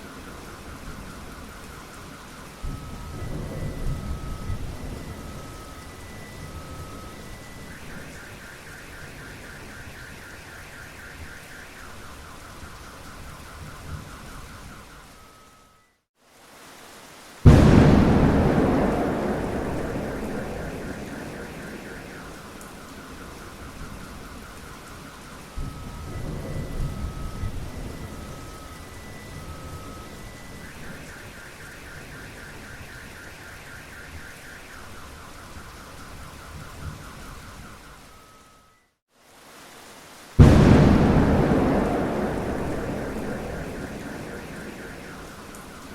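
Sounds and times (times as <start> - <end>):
steady rain: 0.0 - 45.9
car alarm: 0.9 - 15.9, 17.5 - 38.9, 40.4 - 45.9
low thunder rumble: 17.5 - 24.3, 40.4 - 45.9
car alarm warbling: 17.5 - 24.7, 40.4 - 45.9.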